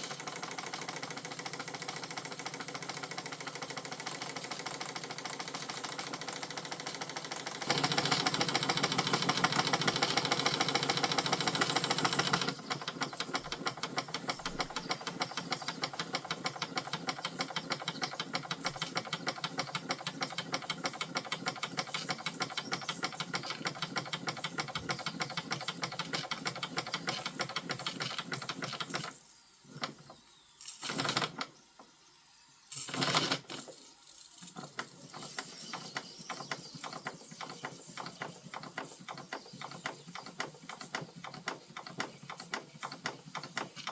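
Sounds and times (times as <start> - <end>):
model steam engine chuffing: 0.0 - 30.0, 34.4 - 43.9
short bursts of noise: 27.1 - 31.9, 32.7 - 39.2.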